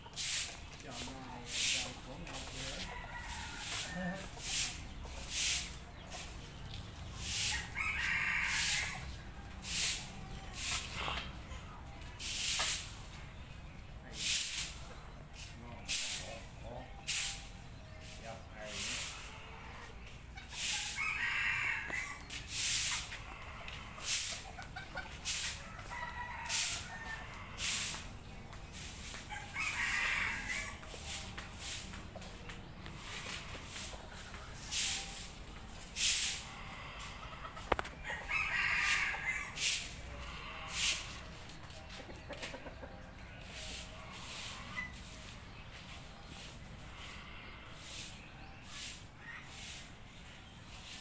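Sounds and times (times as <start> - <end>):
chickens: 0.0 - 51.0
short hissing bursts: 0.2 - 2.7, 3.3 - 6.3, 7.2 - 9.0, 9.6 - 11.2, 12.2 - 13.0, 14.2 - 14.8, 15.4 - 16.5, 17.1 - 19.5, 20.5 - 21.2, 22.5 - 23.1, 24.0 - 24.4, 26.5 - 28.1, 34.7 - 35.4, 36.0 - 36.6, 38.8 - 41.3, 46.3 - 49.9
rooster crowing: 2.6 - 4.6, 7.4 - 9.1, 20.6 - 22.3, 25.5 - 27.9, 29.3 - 30.9, 38.0 - 39.9.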